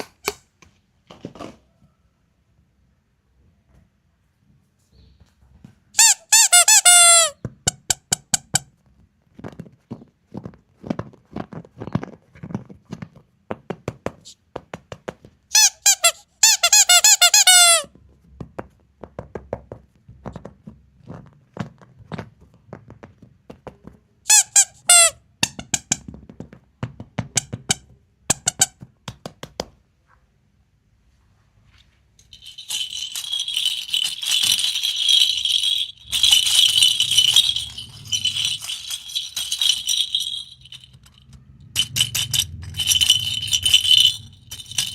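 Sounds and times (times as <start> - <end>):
small hard pieces rattling: 32.2 - 44.9
high squeaking: 32.3 - 44.9.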